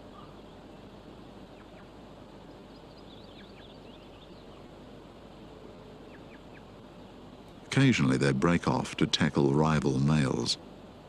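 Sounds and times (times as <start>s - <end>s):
small birds chirping: 0.0s - 7.3s
constant outdoor hiss: 0.0s - 11.0s.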